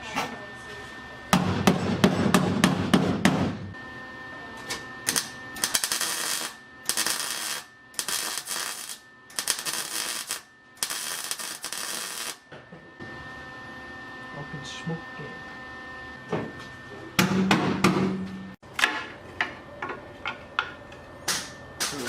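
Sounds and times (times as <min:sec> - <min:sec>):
impact wrench hammering: 0:01.4 - 0:03.7.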